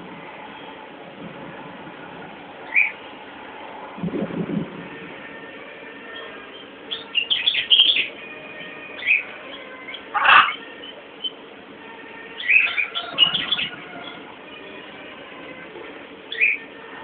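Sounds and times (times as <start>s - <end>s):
harsh bird call: 6.0s - 11.4s, 12.2s - 14.3s, 16.3s - 16.7s
bird twittering calls: 9.9s - 11.4s.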